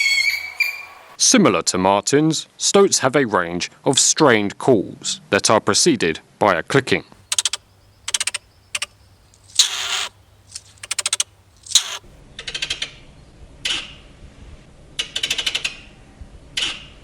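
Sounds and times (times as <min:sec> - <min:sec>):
stoat clicking: 0:07.2 - 0:12.1
stoat harsh call: 0:09.6 - 0:10.2.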